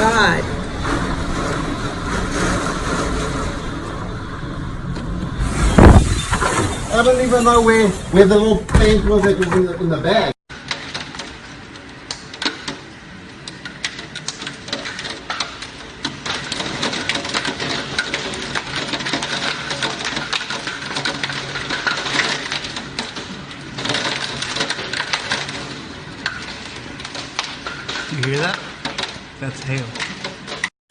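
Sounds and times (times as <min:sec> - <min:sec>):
hailstones striking hard surfaces: 0:13.5 - 0:30.7.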